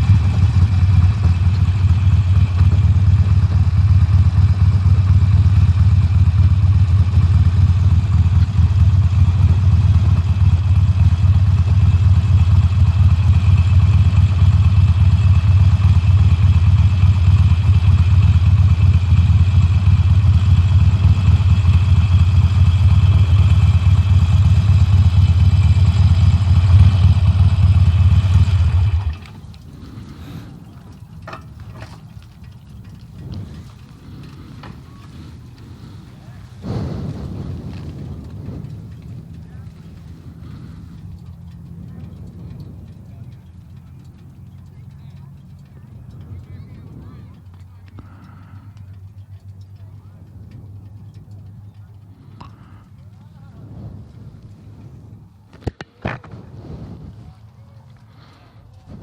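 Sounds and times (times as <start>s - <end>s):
motorcycle engine rumbling: 0.0s - 59.0s.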